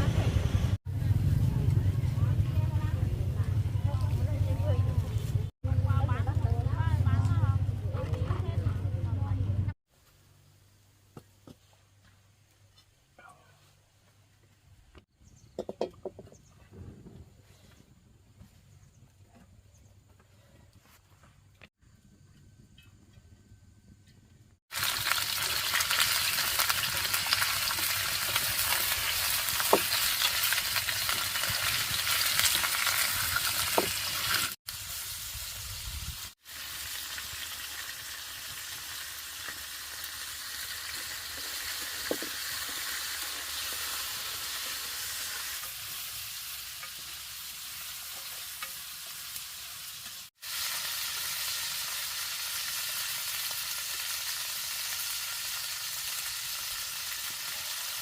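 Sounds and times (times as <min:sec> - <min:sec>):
food sizzling in a pan: 0:24.7 - 0:58.0.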